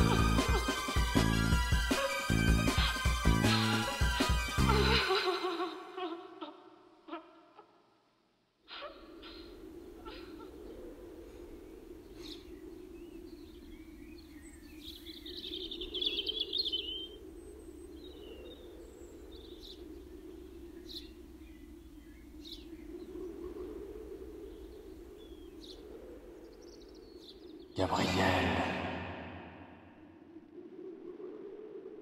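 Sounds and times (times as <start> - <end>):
steady low drone: 0.0 - 5.0, 27.8 - 30.1
birds chirping: 11.7 - 23.4.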